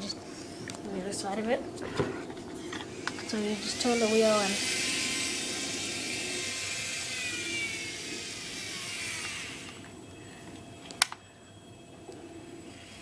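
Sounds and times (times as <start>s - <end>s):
model train motor whirring: 2.6s - 11.2s, 12.1s - 13.0s.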